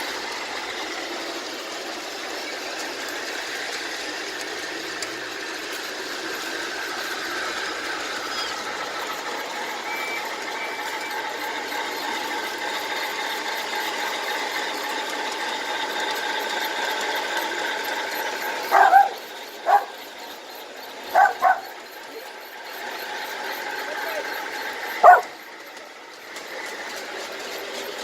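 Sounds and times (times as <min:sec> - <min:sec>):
model locomotive humming: 0:00.0 - 0:28.0
dog barking: 0:18.7 - 0:20.0, 0:21.1 - 0:21.7, 0:25.0 - 0:25.4.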